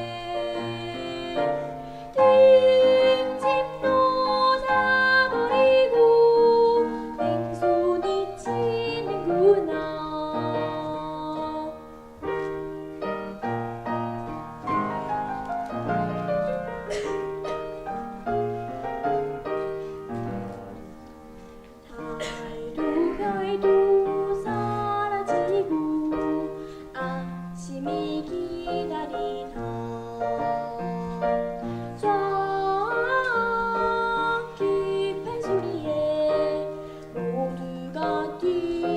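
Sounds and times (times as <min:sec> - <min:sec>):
girl singing: 0:00.0 - 0:12.4, 0:21.9 - 0:38.9
piano accompaniment: 0:00.0 - 0:38.9.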